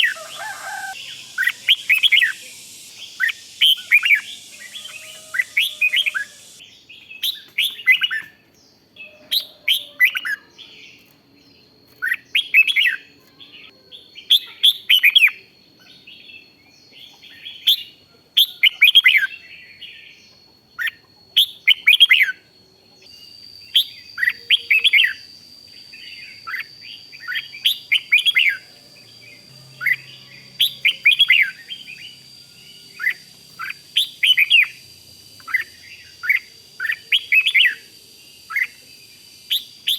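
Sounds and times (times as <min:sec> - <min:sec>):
bird singing warbled phrases: 0:00.0 - 0:08.4, 0:11.9 - 0:39.9
faint high whine: 0:00.0 - 0:08.4, 0:09.0 - 0:39.9.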